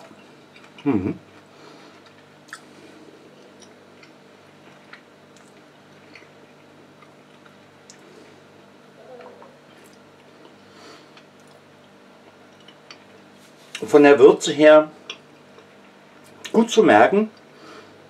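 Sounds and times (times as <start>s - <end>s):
faint chewing: 0.1s - 8.2s, 9.0s - 13.8s.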